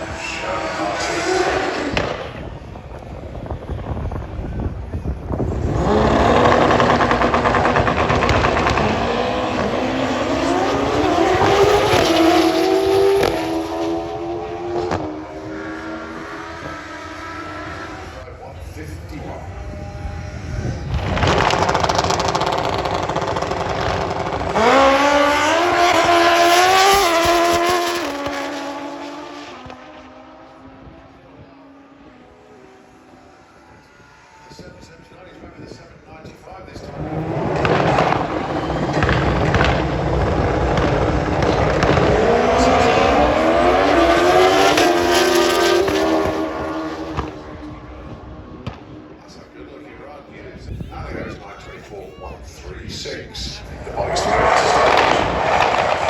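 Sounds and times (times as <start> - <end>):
motorcycle engine accelerating hard: 5.2 - 18.2, 19.5 - 31.5, 36.7 - 49.2, 53.9 - 56.0.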